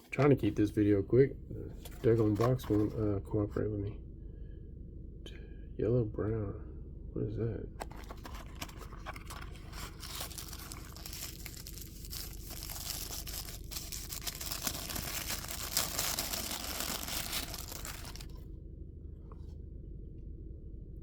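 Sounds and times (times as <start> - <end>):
paper crinkling and rustling: 1.8 - 3.0, 7.8 - 18.4.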